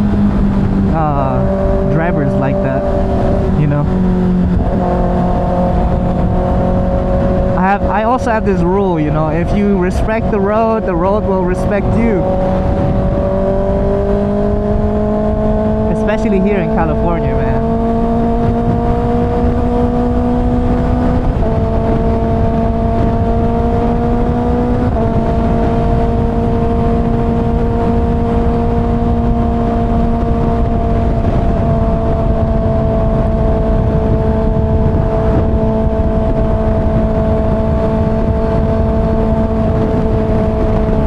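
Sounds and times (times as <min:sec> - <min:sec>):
wind noise rushing: 0:00.0 - 0:41.0.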